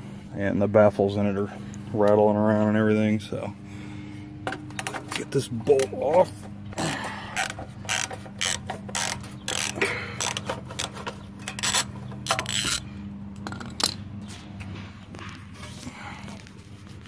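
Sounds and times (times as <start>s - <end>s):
hand ratchet clicking: 6.8s - 12.8s.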